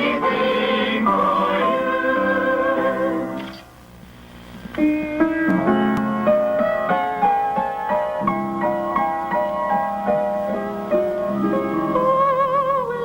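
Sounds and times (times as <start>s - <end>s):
solo piano: 4.8s - 13.0s.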